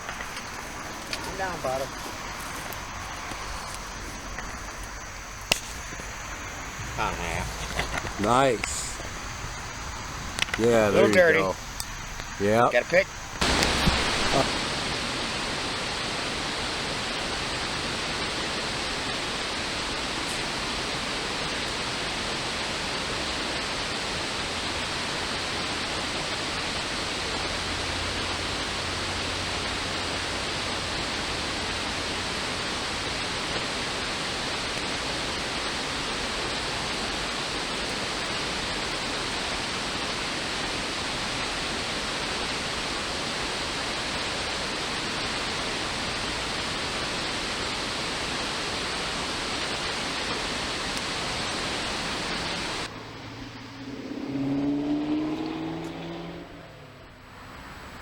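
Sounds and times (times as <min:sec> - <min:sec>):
creek water rushing: 0:00.0 - 0:56.7.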